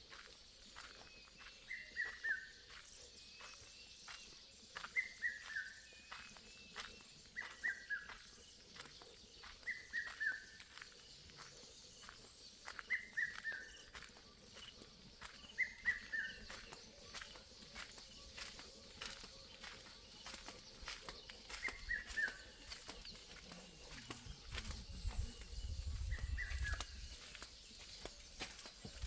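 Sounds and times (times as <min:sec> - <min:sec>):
cuckoo calling: 0:12.0 - 0:25.2.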